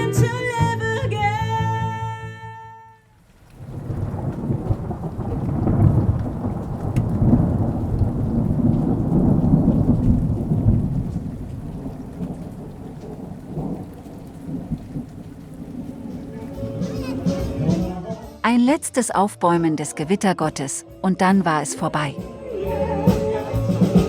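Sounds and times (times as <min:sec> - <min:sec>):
steady rain: 0:02.7 - 0:18.3
thunder rumbling: 0:03.4 - 0:18.0.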